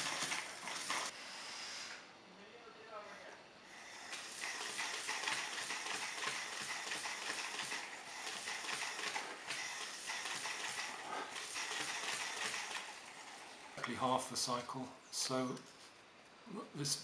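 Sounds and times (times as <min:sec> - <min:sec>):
vacuum motor rattling: 0:00.0 - 0:01.1, 0:04.0 - 0:13.9.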